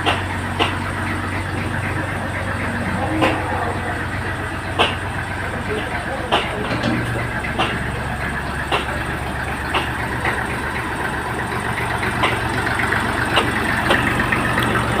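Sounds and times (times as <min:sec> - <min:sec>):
tractor diesel engine idling: 0:00.0 - 0:15.0
sharp clicks or knocks: 0:09.7 - 0:10.0.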